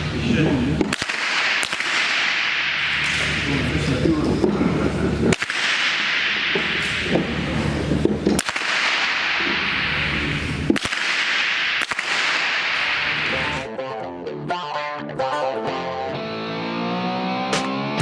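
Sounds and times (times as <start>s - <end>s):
steady hiss: 0.0s - 13.7s
rifle shots: 0.3s - 13.7s.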